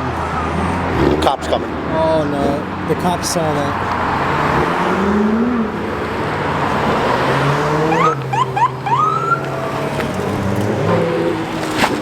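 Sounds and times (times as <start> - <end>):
car engines running: 0.0 - 12.0
police siren chirps and whoop: 7.9 - 10.0.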